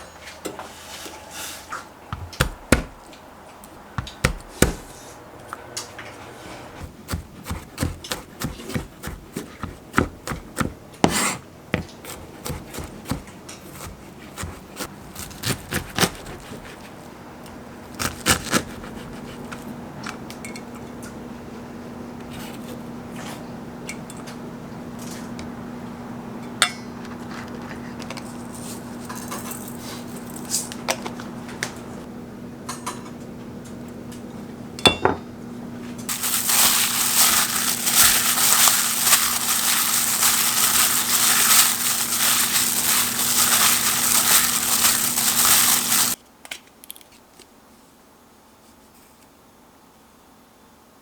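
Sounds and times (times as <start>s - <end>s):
utensils clicking and clinking: 36.1s - 46.2s.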